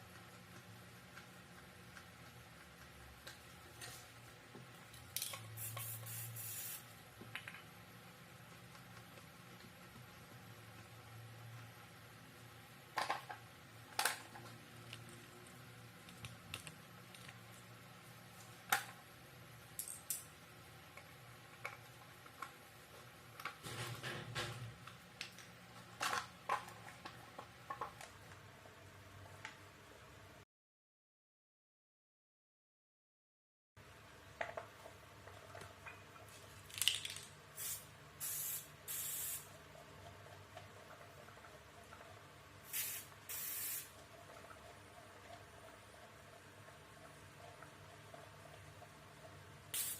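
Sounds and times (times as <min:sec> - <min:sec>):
aerosol spray can hissing: 0:05.6 - 0:06.9, 0:37.6 - 0:39.5, 0:42.7 - 0:43.9.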